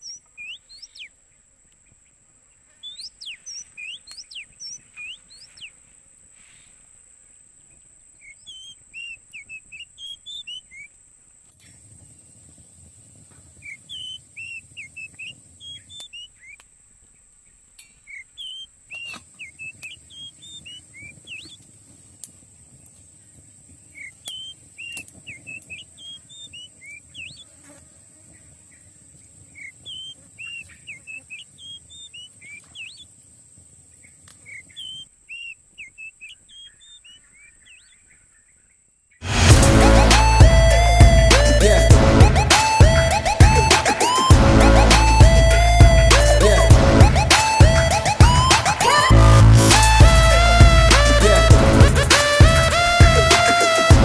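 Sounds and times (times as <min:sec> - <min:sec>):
songbird chirping: 0:00.0 - 0:54.0
loud music: 0:39.2 - 0:54.0.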